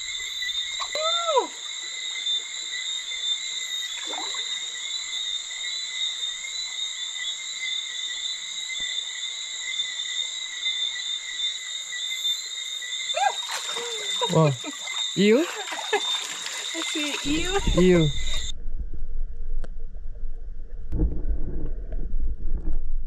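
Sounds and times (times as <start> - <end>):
frogs calling: 0.0 - 18.5
insects calling: 0.0 - 18.5
stream water trickling: 3.6 - 5.8, 13.2 - 18.5.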